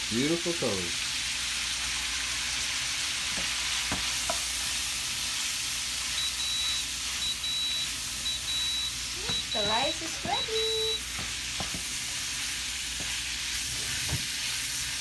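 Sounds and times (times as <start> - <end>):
food sizzling in a pan: 0.0 - 15.0
high electronic beeps: 6.2 - 11.0
utensil tapping: 9.2 - 11.9.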